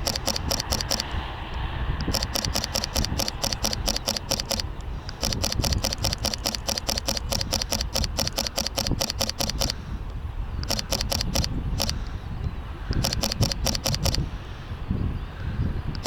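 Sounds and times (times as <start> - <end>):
camera shutter clicking rapidly: 0.0 - 9.8, 10.6 - 12.1, 12.9 - 14.2.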